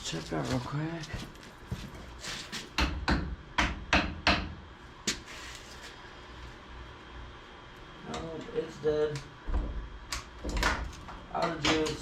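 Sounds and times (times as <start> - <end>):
sharp knocks and clicks of tools: 2.7 - 5.2, 9.2 - 12.0.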